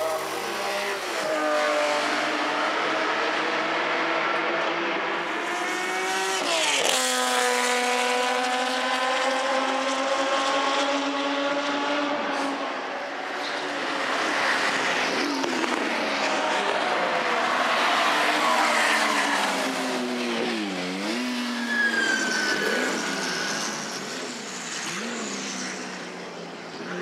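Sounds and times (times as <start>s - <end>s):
racing car engine accelerating: 0.2s - 12.7s.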